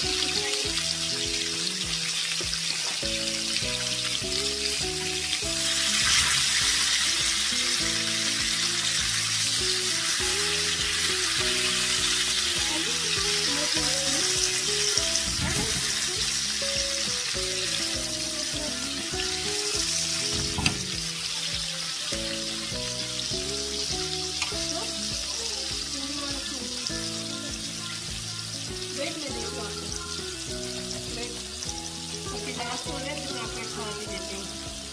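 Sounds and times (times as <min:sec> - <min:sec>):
food sizzling in oil: 0:00.0 - 0:34.9.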